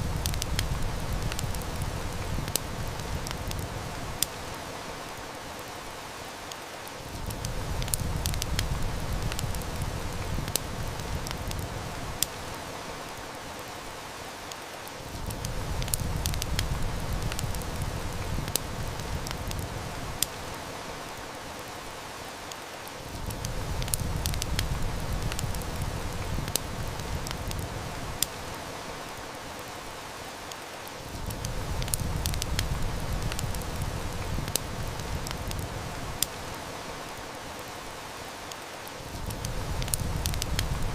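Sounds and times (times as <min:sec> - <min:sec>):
sharp snaps: 0:00.0 - 0:03.6, 0:06.5 - 0:11.6, 0:15.3 - 0:19.6, 0:23.3 - 0:28.4, 0:30.5 - 0:36.4, 0:38.5 - 0:40.9
heavy rain: 0:00.0 - 0:40.9
wood fire crackling: 0:00.0 - 0:40.9.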